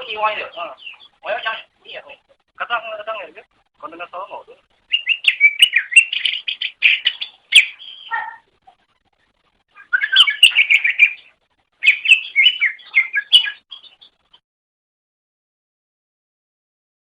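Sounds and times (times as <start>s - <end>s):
bird chirping and warbling: 0.0s - 3.0s, 4.9s - 8.7s, 9.7s - 14.4s.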